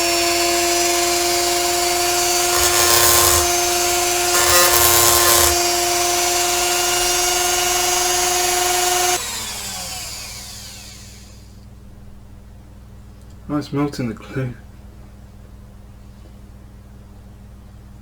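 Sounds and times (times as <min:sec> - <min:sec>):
rotary tool high whine: 0:00.0 - 0:11.4
grinding bit on metal: 0:02.4 - 0:05.8.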